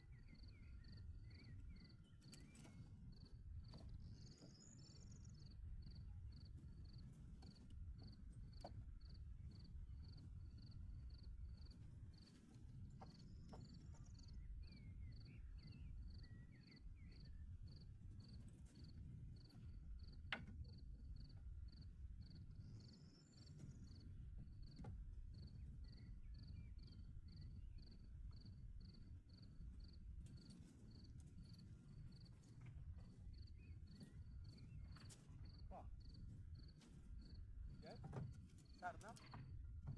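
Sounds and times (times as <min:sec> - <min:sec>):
cricket chirping: 0:00.1 - 0:02.5, 0:03.1 - 0:07.0, 0:08.0 - 0:12.2, 0:25.3 - 0:32.3, 0:33.0 - 0:39.5.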